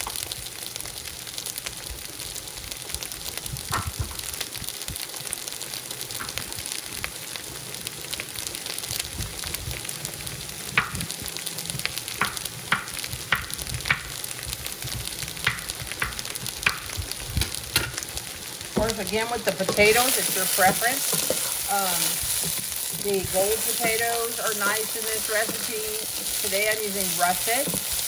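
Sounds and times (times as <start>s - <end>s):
food sizzling in a pot: 0.0s - 28.0s
spoon scraping a cooking pot: 19.6s - 22.9s.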